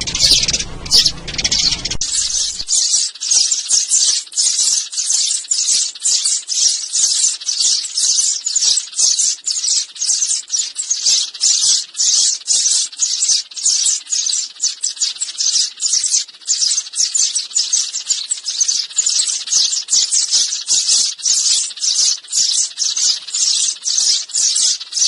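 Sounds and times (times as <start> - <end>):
sparrows chirping: 0.0 - 25.0.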